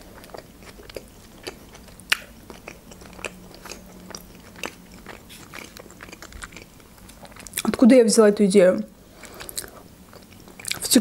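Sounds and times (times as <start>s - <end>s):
chewing with wet mouth clicks: 0.1s - 7.8s, 9.2s - 10.9s.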